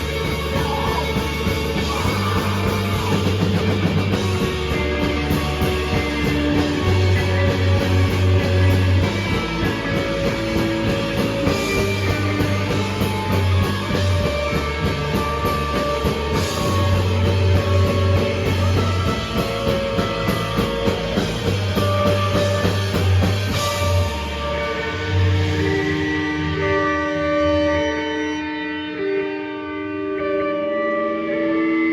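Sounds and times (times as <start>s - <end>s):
rapid drum hits: 0.0s - 26.2s
rock band playing live: 0.0s - 31.9s.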